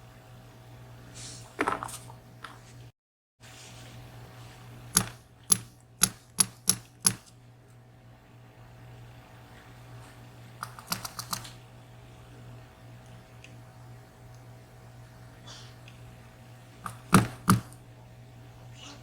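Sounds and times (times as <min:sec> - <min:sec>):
sharp taps on lock cylinder: 0:05.0 - 0:07.3.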